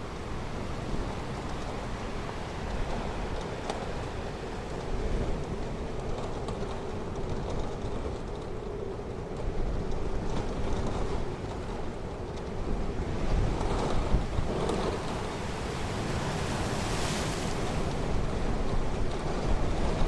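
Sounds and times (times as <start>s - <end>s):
wind on microphone: 0.0s - 20.0s
surf washing onto shore: 14.1s - 19.7s.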